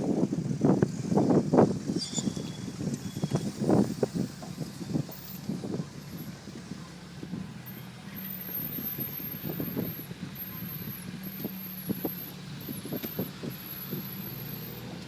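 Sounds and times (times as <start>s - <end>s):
car engine at low revs: 0.0s - 15.0s.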